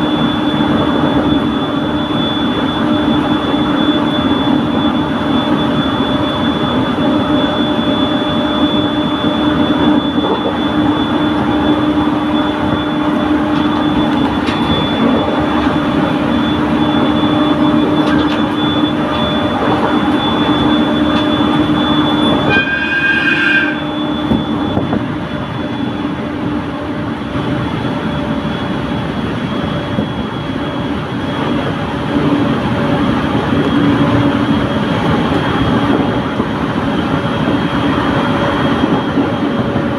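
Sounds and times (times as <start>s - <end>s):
brief high tone: 0.0s - 26.3s
steady hum: 0.0s - 39.9s
train wheels rumbling: 0.0s - 39.9s.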